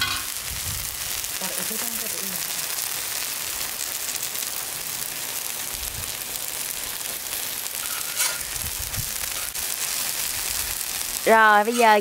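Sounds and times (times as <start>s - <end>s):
frying in hot oil: 0.0s - 12.0s.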